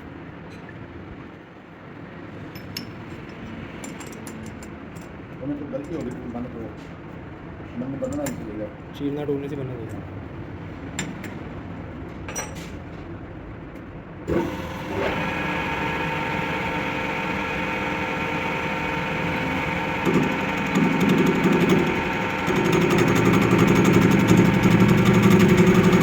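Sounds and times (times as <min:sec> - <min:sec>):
workshop machine motor humming: 0:14.3 - 0:26.0.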